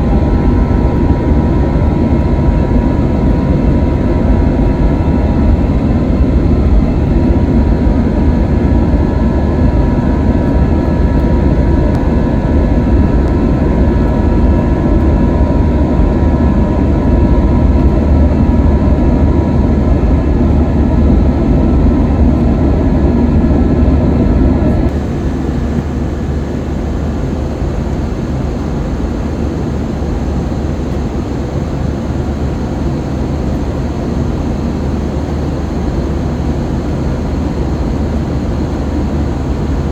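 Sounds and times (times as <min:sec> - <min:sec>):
jet engine and airflow rumble: 0:00.0 - 0:39.9.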